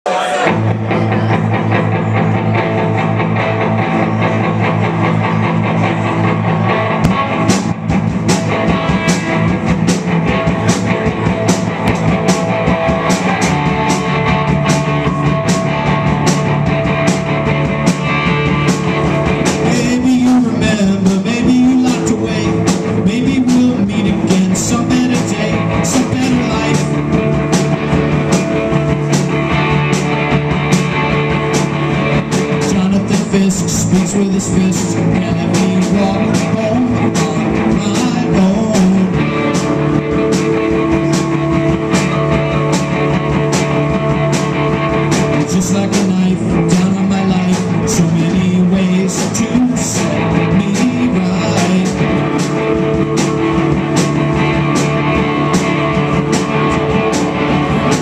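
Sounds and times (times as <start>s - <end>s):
drum kit beat: 0.1s - 58.0s
guitar and bass: 0.1s - 58.0s.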